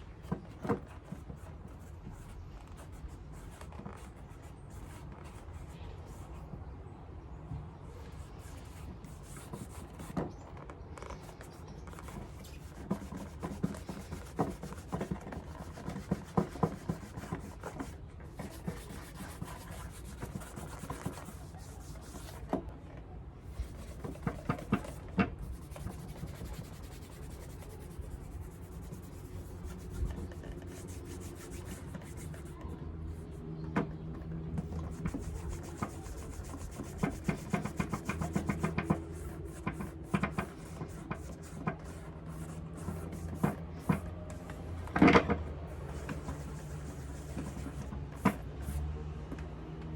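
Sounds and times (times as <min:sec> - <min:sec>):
rubbing strokes on leather shoe: 0:11.1 - 0:22.6, 0:23.6 - 0:32.6, 0:34.7 - 0:44.0, 0:45.8 - 0:48.4.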